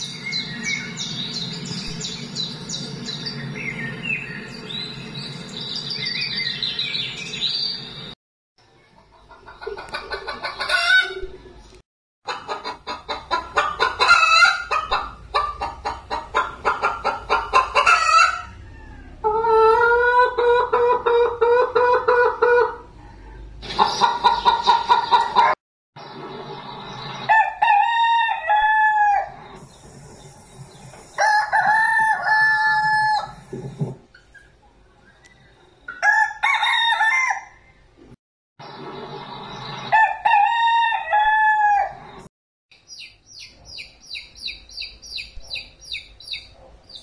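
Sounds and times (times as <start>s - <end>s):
small birds chirping: 0.0s - 8.1s, 22.9s - 25.4s, 29.4s - 31.2s, 33.7s - 36.0s, 42.7s - 47.0s
chickens clucking: 8.9s - 11.6s, 12.3s - 27.7s
rooster crowing: 17.8s - 20.2s, 27.3s - 29.4s, 31.2s - 33.4s, 36.0s - 37.8s, 39.9s - 42.0s.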